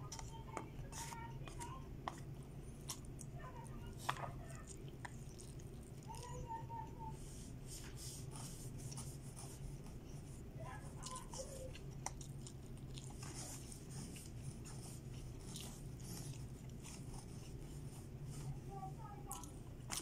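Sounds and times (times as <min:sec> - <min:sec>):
steady low hum: 0:00.0 - 0:20.0
chewing and lip-smacking: 0:02.1 - 0:06.4, 0:10.9 - 0:17.2, 0:19.2 - 0:20.0.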